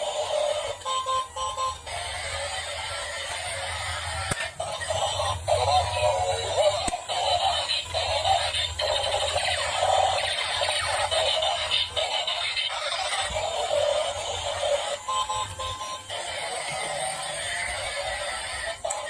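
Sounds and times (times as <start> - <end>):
electronic singing voice: 0.0 - 19.0.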